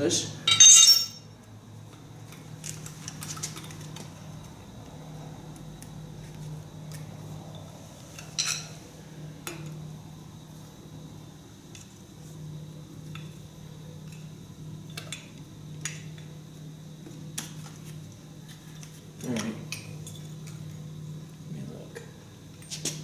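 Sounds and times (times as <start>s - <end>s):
metal tools clinking: 0.5s - 1.3s, 8.2s - 8.8s.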